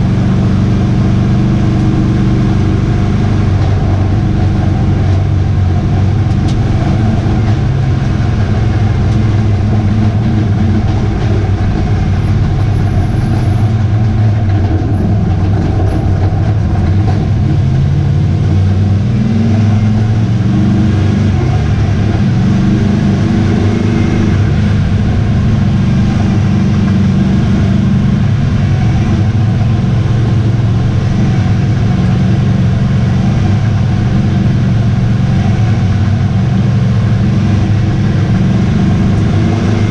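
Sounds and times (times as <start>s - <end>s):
racing truck engine running hard: 0.0s - 39.9s.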